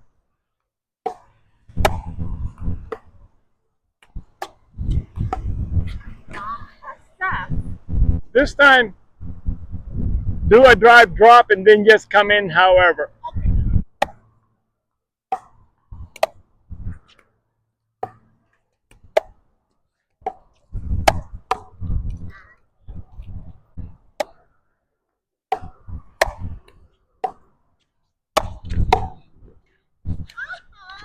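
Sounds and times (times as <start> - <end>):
ball bouncing: 1.0 - 3.1, 4.0 - 6.4, 20.2 - 22.3, 23.8 - 24.4, 25.5 - 27.5, 28.4 - 29.3
wind buffeting microphone: 1.7 - 2.9, 4.7 - 11.4, 13.2 - 14.0, 20.7 - 24.1
paddle hitting ball: 25.5 - 26.6, 27.2 - 27.5, 28.4 - 29.2.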